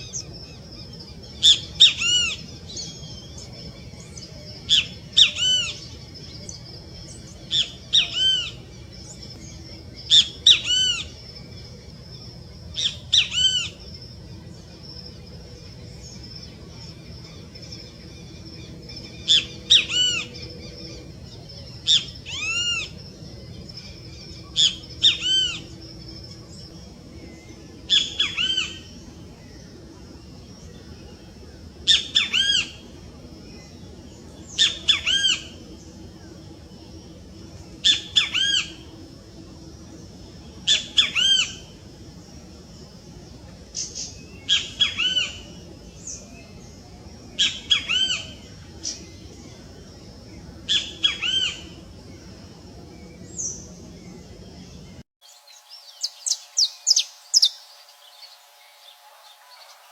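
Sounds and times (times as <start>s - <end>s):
low hum: 0.0s - 59.9s
songbirds calling: 0.0s - 59.9s
faint steady high tone: 32.8s - 59.9s.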